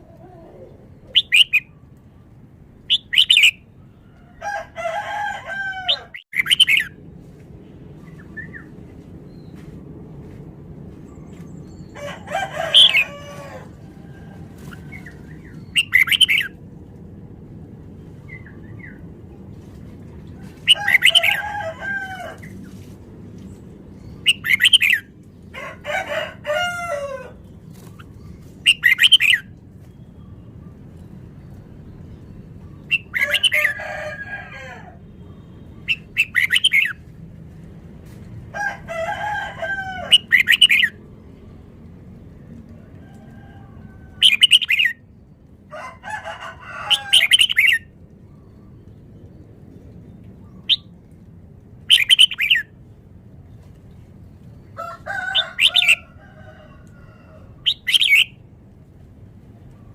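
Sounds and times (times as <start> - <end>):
low background hum: 0.0 - 59.9
bird singing warbling phrases: 0.3 - 1.8, 2.9 - 3.7, 5.9 - 7.0, 15.0 - 16.6, 24.0 - 25.1, 27.8 - 29.5, 32.7 - 33.8, 35.4 - 37.0, 40.1 - 41.0, 44.2 - 45.1, 51.8 - 52.7, 57.6 - 58.4.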